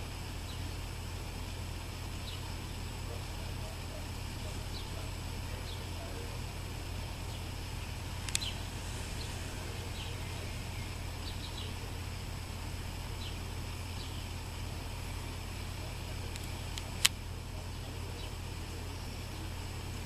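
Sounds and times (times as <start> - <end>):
low rumble: 0.0 - 20.0
small birds chirping: 0.0 - 20.0
sharp click: 8.2 - 8.6.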